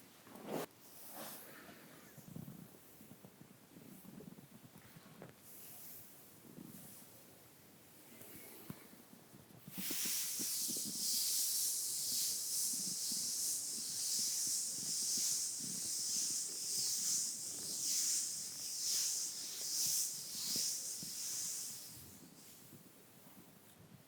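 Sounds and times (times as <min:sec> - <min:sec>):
brush bristles sweeping over skin: 0:09.7 - 0:22.7.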